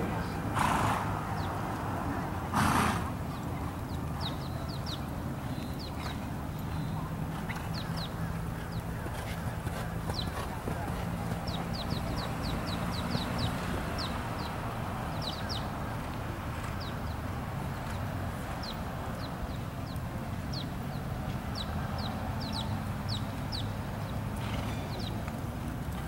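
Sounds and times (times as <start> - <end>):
bird chirping: 3.3 - 15.7.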